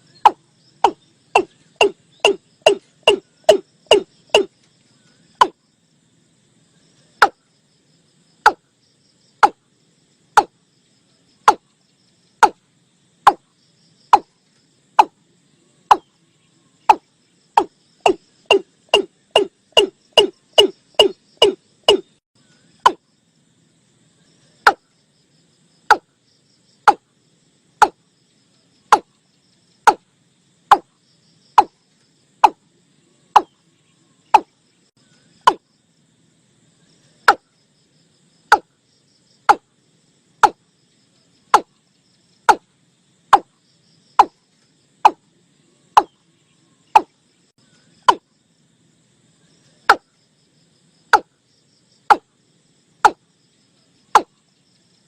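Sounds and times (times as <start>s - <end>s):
bird calling with sharp notes: 0.0s - 5.6s, 13.2s - 23.1s, 32.4s - 35.7s, 45.9s - 48.3s.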